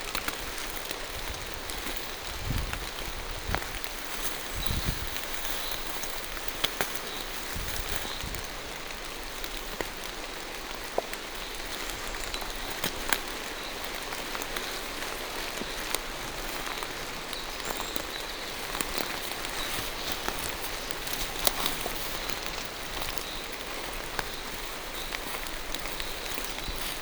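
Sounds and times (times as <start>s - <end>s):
rain falling through trees: 0.0s - 27.0s
raindrops ticking: 0.0s - 27.0s.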